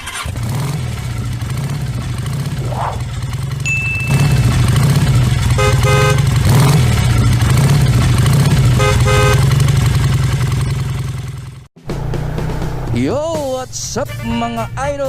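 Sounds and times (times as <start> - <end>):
motorcycle engine deep exhaust: 0.1 - 13.0
horn tooting: 3.6 - 9.9, 13.7 - 15.0.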